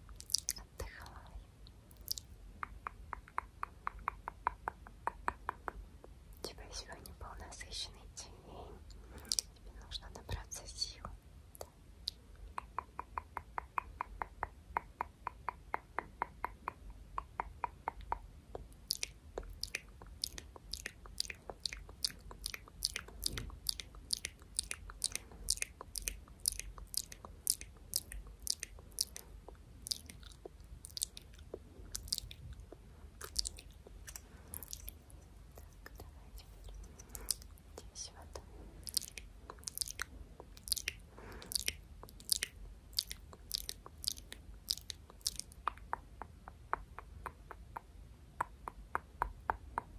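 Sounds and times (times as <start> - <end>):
soft clicking sounds: 0.0 - 49.9.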